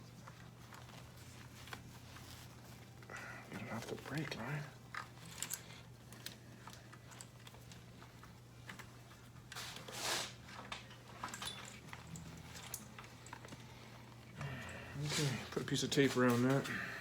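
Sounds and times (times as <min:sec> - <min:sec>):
hands handling wiring: 0:00.0 - 0:16.9
steady low hum: 0:10.4 - 0:17.0.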